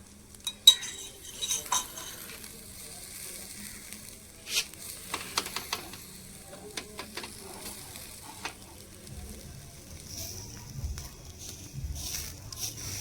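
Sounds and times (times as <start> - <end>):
food sizzling in a pan: 0.0 - 13.0
spoon clinking and scraping pan: 0.4 - 2.5, 5.0 - 7.4.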